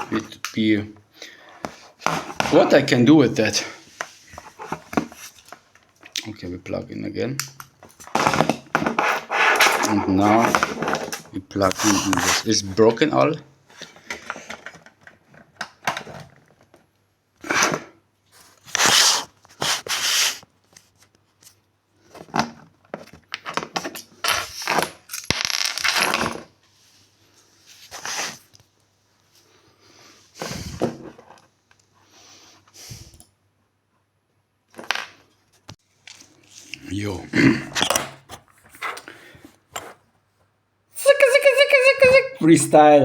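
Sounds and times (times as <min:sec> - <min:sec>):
objects rubbing and scraping: 0:01.6 - 0:05.6, 0:08.2 - 0:12.5.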